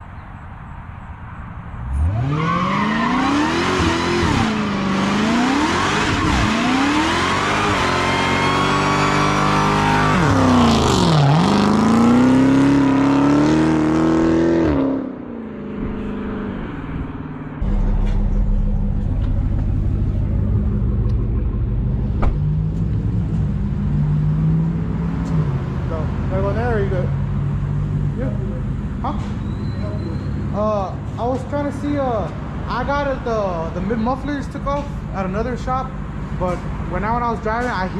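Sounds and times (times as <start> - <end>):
car engine revving: 1.7 - 29.3
low engine rumble: 15.8 - 37.9.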